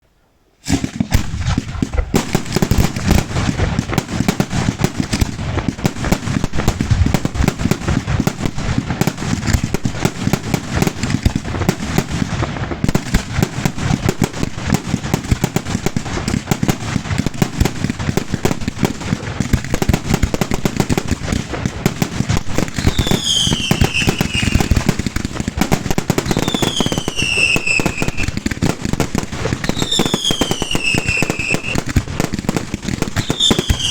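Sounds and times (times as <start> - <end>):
falling firework whistles: 0.6 - 2.8, 22.7 - 24.9, 26.3 - 28.4, 29.6 - 31.8, 33.1 - 33.9
fireworks bangs and crackling: 0.6 - 33.9.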